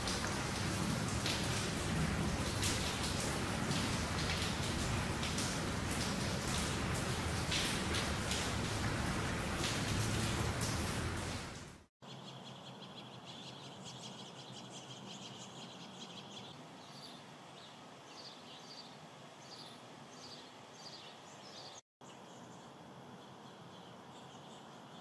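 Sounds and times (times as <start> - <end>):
small birds chirping: 12.0 - 25.0.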